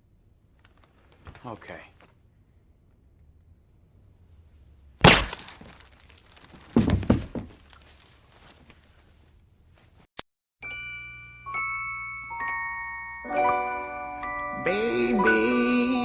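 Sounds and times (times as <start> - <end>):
loud crash of smashing: 5.0 - 7.5
crashing and breaking: 5.0 - 7.9
debris crackling: 5.0 - 8.1
chime-like mallet music: 10.6 - 15.6.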